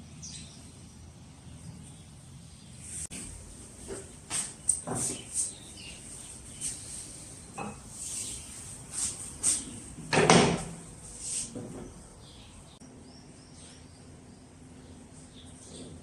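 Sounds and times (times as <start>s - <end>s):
scrapes and knocks: 3.1s - 12.3s.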